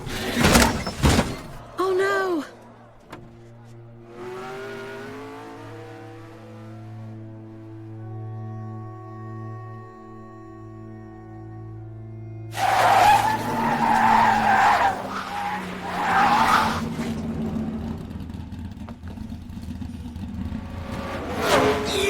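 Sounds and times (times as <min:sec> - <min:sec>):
tyres screeching in a skid: 0:00.0 - 0:01.8, 0:12.5 - 0:17.4, 0:21.2 - 0:22.0
orchestral film music: 0:01.6 - 0:18.1.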